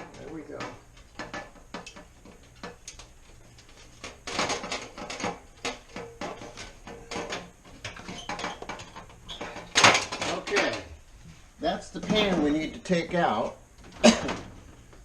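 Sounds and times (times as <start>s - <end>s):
pan rattling and knocking: 0.0s - 11.0s.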